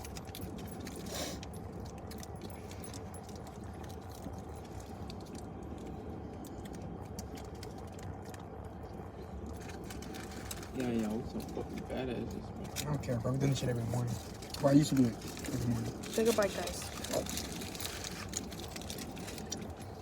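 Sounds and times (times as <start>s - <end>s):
low hum: 0.0s - 20.0s
paper wrappers rustling: 9.6s - 11.9s, 12.6s - 20.0s.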